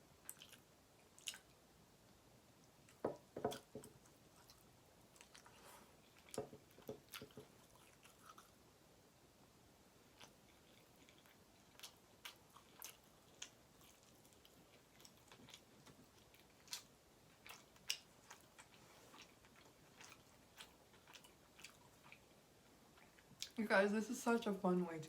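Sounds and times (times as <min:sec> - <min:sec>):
wet chewing mouth clicks: 0:00.2 - 0:01.6, 0:04.3 - 0:08.6, 0:10.2 - 0:23.6.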